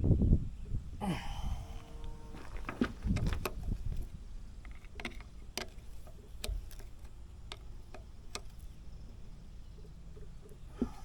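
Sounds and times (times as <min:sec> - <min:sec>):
tools and metal parts clicking: 0:04.6 - 0:08.8.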